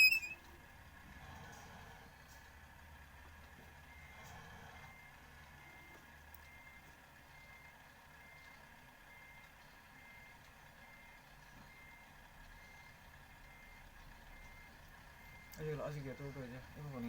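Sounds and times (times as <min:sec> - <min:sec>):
reversing alarm beeping: 0:00.0 - 0:00.4, 0:13.5 - 0:17.0.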